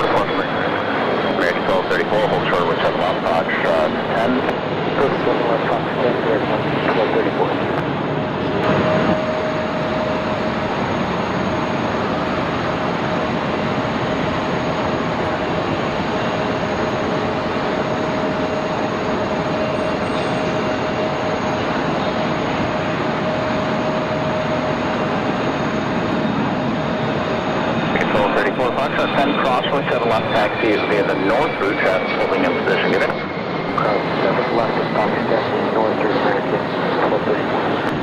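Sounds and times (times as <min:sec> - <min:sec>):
jet engines rushing and whining: 0:00.0 - 0:38.0.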